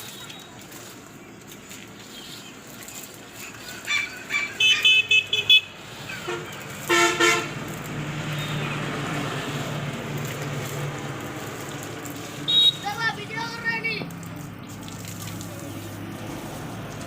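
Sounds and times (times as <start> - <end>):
vehicle horn beeping: 4.6 - 5.7, 6.3 - 7.5, 12.5 - 13.0.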